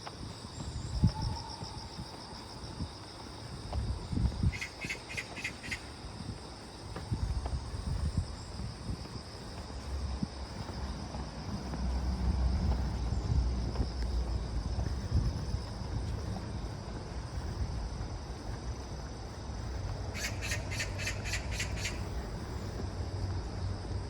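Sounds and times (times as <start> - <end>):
low outdoor rumble: 6.4 - 24.0
bird harsh calls: 20.2 - 22.1.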